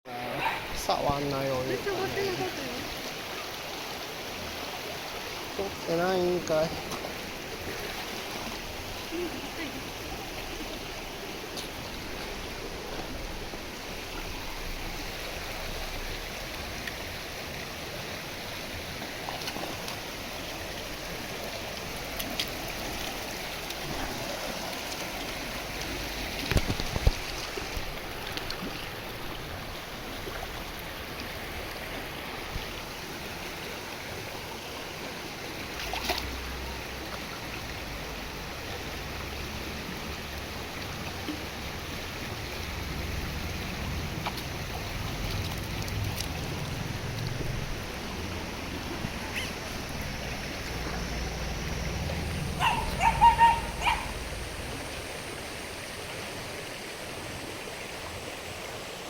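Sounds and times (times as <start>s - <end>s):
steady rushing hiss: 53.6s - 59.0s.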